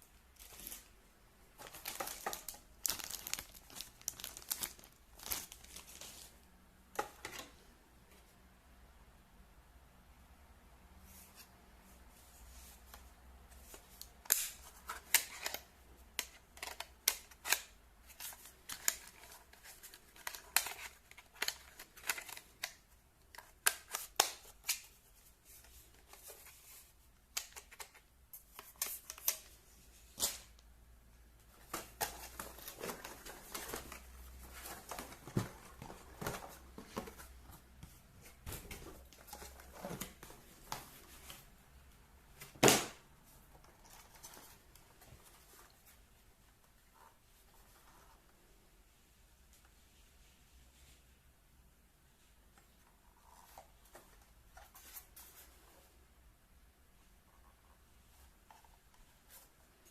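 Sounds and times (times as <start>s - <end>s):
packaging and plastic parts handled: 0.3s - 7.4s, 13.6s - 30.5s, 31.5s - 41.5s.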